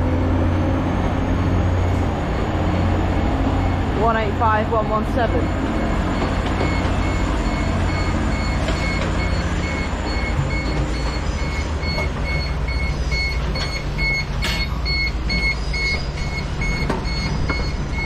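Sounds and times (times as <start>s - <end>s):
trains rumbling: 0.0s - 18.0s.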